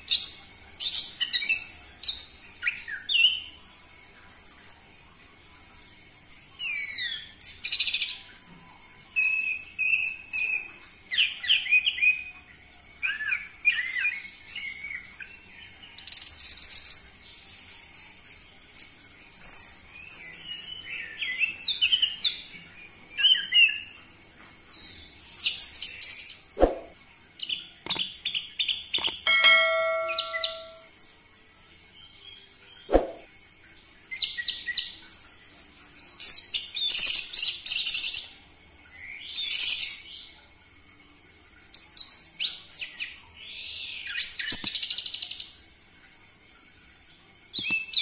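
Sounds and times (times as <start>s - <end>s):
sharp clicks: 27.8s - 28.1s, 29.0s - 29.2s.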